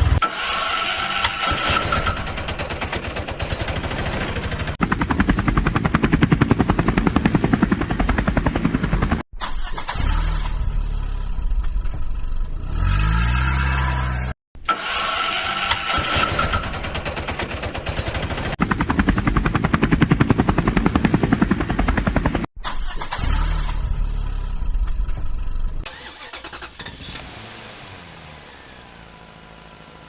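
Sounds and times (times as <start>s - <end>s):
fast even engine chugging: 1.6s - 9.2s, 15.9s - 22.5s
vehicle engine running: 2.1s - 9.2s, 16.6s - 22.5s, 27.1s - 30.0s
engine revving up: 12.6s - 16.7s, 25.9s - 29.8s.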